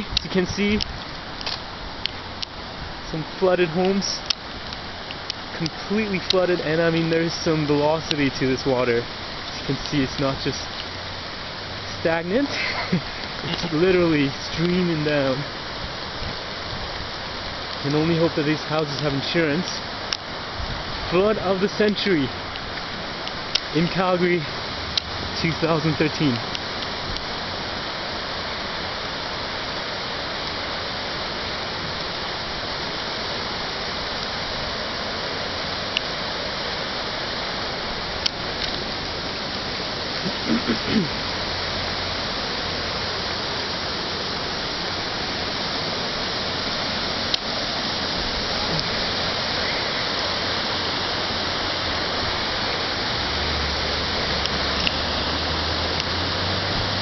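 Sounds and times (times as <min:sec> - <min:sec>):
river water rushing: 0:00.0 - 0:57.0
faint clicks: 0:54.4 - 0:55.0.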